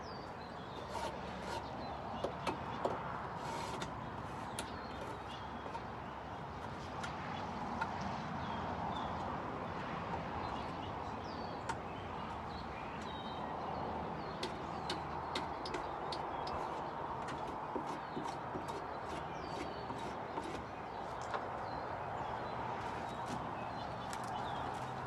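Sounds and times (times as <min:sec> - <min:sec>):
small birds chirping: 0:00.0 - 0:07.6, 0:10.4 - 0:25.0.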